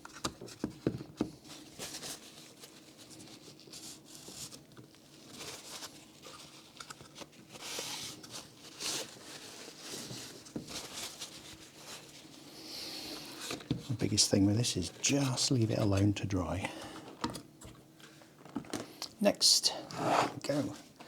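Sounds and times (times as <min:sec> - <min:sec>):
faint steady hum: 0:11.4 - 0:21.0.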